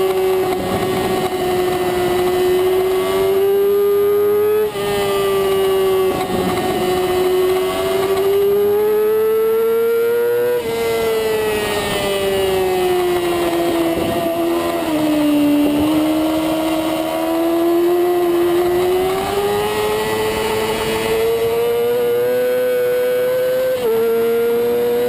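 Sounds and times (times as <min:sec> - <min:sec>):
motorcycle engine at high revs: 0:00.0 - 0:25.0
wind rush on microphone: 0:00.3 - 0:03.0, 0:05.4 - 0:08.3, 0:11.6 - 0:17.2.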